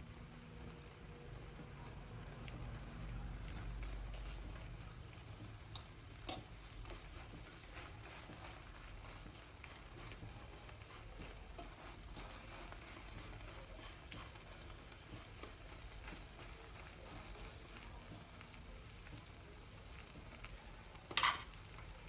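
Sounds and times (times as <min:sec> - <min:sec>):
food frying in a pan: 0:00.0 - 0:22.0
utensil clicking against pan: 0:03.4 - 0:19.3, 0:21.0 - 0:21.6.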